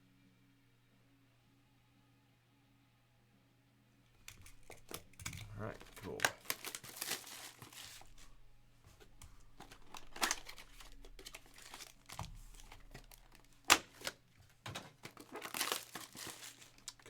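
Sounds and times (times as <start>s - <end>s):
plastic wrapping crinkling: 4.2s - 17.0s.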